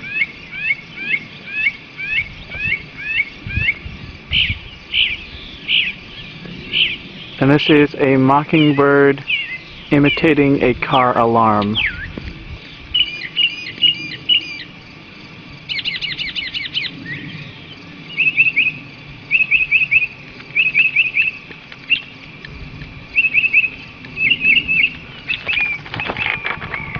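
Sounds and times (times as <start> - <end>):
mockingbird mimicking car alarm: 13.0 - 14.7.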